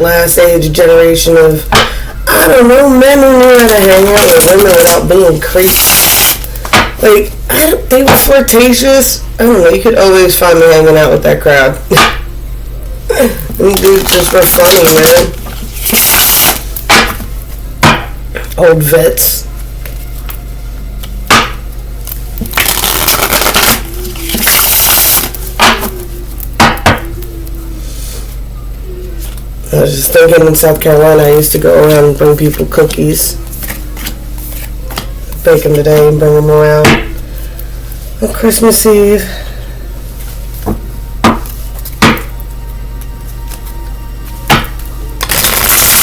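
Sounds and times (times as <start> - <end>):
cards shuffling: 13.3 - 17.3, 22.0 - 26.5, 31.8 - 36.1, 41.2 - 42.5, 43.2 - 46.0
cards tapping: 21.0 - 27.3
card deck knocking on table: 40.6 - 42.3.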